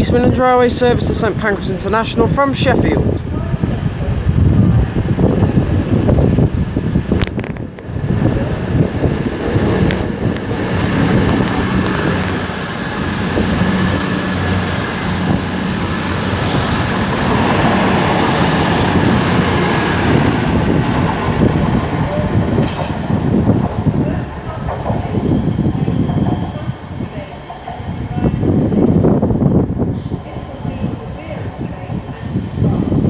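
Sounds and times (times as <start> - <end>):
diesel train engines pulling away: 3.0 - 33.0
high-pitched whine: 7.2 - 21.2.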